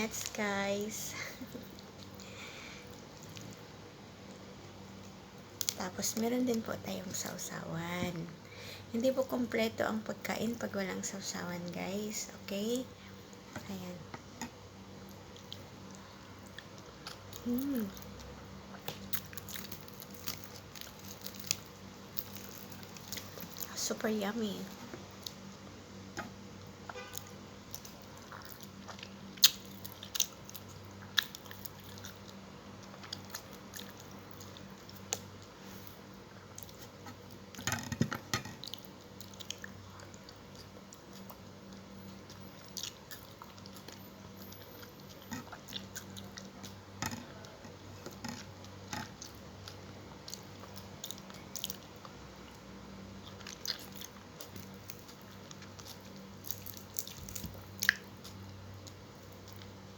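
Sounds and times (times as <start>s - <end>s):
faint low hum: 0.0s - 59.9s
person chewing food: 1.2s - 5.8s, 14.4s - 23.7s, 26.9s - 59.9s
crisp crunches and mouth clicks: 15.0s - 23.9s, 26.9s - 44.1s, 45.0s - 59.9s.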